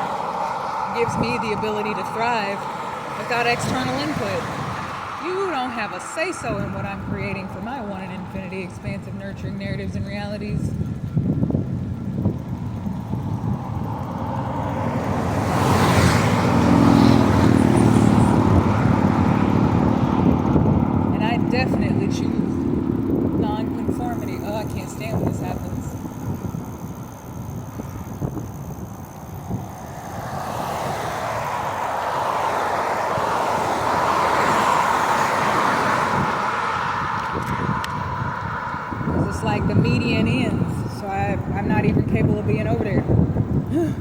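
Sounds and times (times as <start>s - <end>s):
steady low hum: 0.0s - 34.1s
car road and engine noise: 0.0s - 44.0s.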